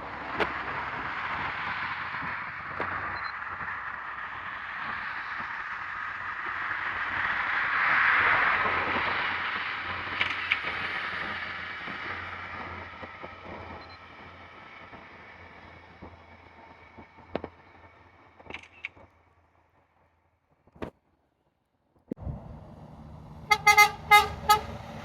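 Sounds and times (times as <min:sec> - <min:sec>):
vehicle passing by: 0:22.2 - 0:25.0.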